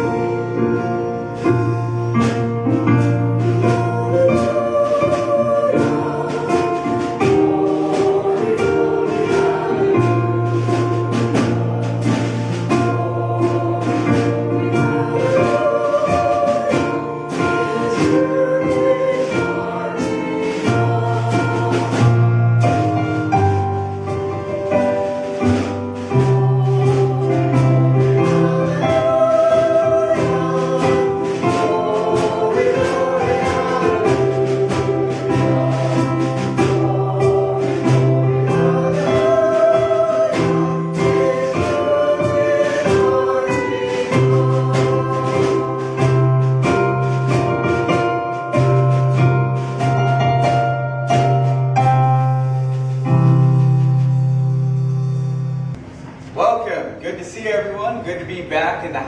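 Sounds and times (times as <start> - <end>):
group of voices singing: 0.0 - 53.2
band playing worship music: 0.0 - 59.0.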